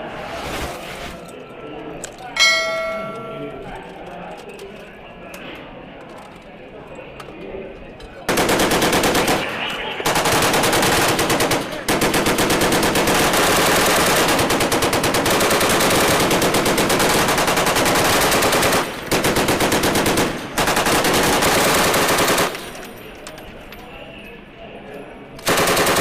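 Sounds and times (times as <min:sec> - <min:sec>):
automatic gunfire: 0:08.3 - 0:22.6, 0:25.4 - 0:26.0.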